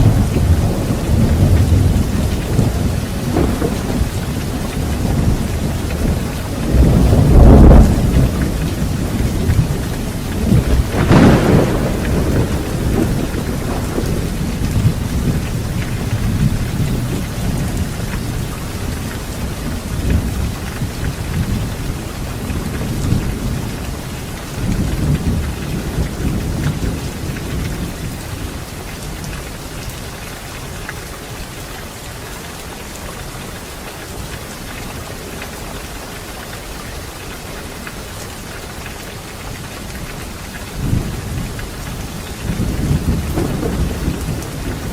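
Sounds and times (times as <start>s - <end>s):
loud thunderclap: 0.0s - 18.4s, 42.4s - 44.9s
thunder rumbling: 0.0s - 29.2s, 39.9s - 44.9s
heavy rain: 0.0s - 44.9s.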